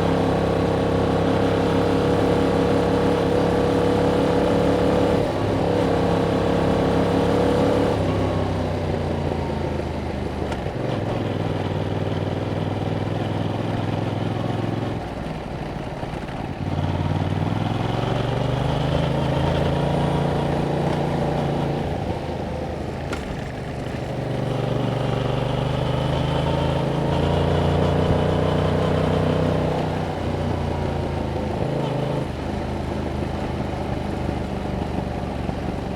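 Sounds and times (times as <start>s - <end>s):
motorcycle engine on the move: 0.0s - 35.9s.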